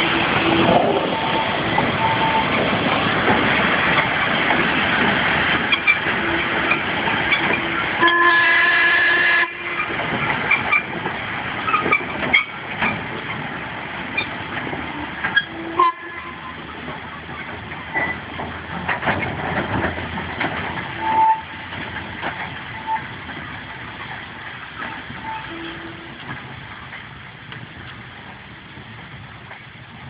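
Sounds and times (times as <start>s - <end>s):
steam locomotive hissing: 0.0s - 18.9s
steam whistle: 8.0s - 9.8s, 15.4s - 16.4s, 25.2s - 26.1s
clanks and knocks: 16.8s - 21.0s.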